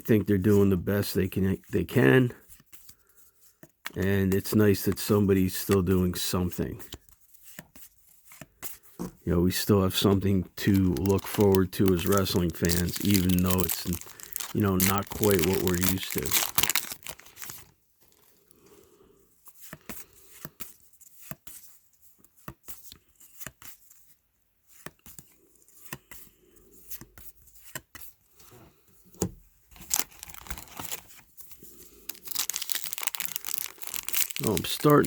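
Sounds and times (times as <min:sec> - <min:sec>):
wrapper crinkling: 0:09.9 - 0:18.4, 0:29.7 - 0:35.0
cards clicking and snapping: 0:10.1 - 0:17.7, 0:29.8 - 0:31.2, 0:32.0 - 0:35.0.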